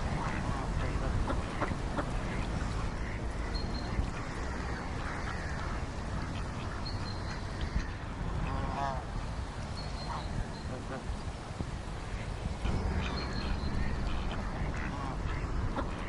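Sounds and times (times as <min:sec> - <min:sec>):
ducks quacking: 0:00.0 - 0:09.0, 0:12.2 - 0:16.0.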